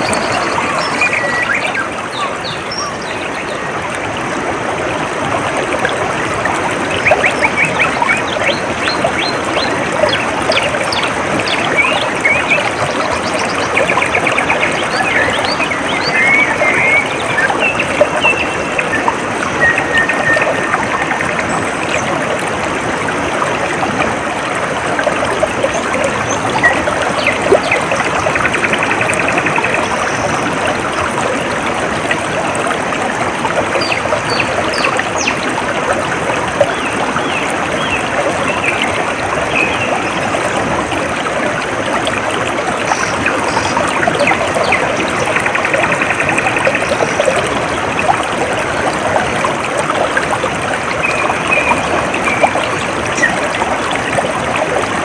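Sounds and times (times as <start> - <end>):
birds chirping: 0.0 - 3.8, 6.9 - 22.2
water trickling: 0.0 - 55.0.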